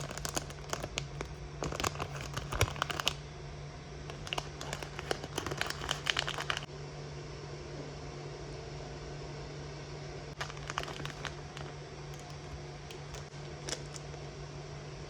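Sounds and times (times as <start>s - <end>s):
crinkling and clicking: 0.0s - 3.2s, 4.0s - 6.7s, 10.4s - 14.2s
steady low hum: 0.0s - 15.0s.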